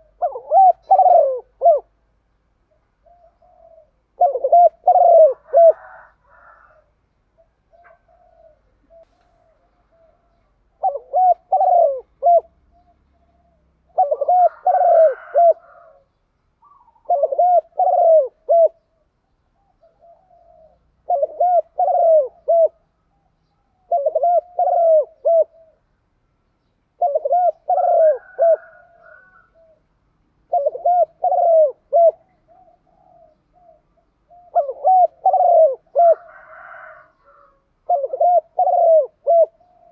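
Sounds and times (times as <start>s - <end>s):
dove cooing: 0.0s - 2.0s, 2.7s - 26.0s, 26.6s - 39.9s.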